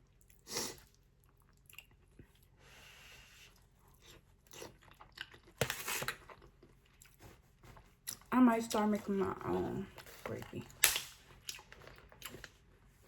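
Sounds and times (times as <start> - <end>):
person chewing food: 0.0 - 2.6, 3.3 - 8.3, 10.7 - 13.0.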